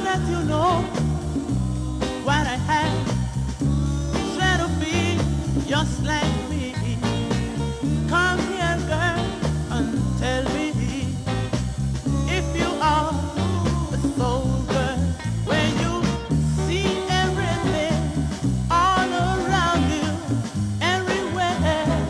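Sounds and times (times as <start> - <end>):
soul record with bass and drums: 0.0 - 22.0.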